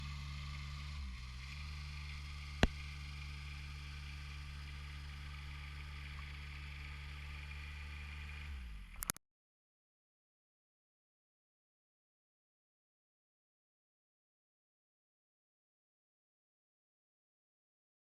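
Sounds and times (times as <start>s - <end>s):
low mechanical hum: 0.0s - 9.2s
sharp click: 9.0s - 9.2s.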